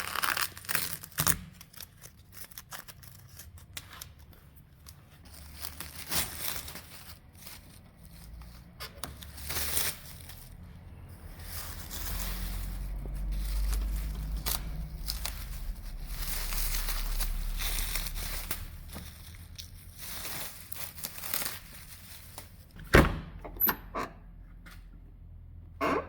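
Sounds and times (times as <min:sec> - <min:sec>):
rustling and crinkling material: 0:00.0 - 0:22.9
low rumble: 0:09.9 - 0:22.8.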